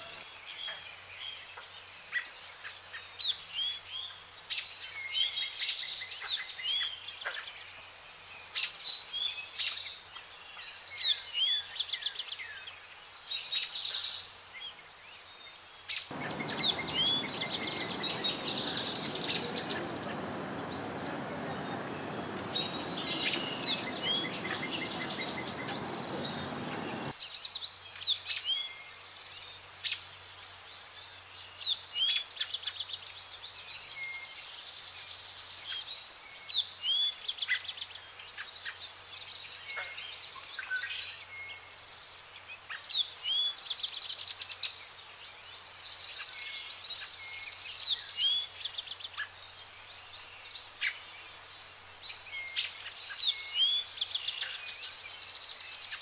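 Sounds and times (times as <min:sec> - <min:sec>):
steady rushing noise: 0:16.1 - 0:27.1
songbirds chirping and trilling: 0:16.1 - 0:27.2.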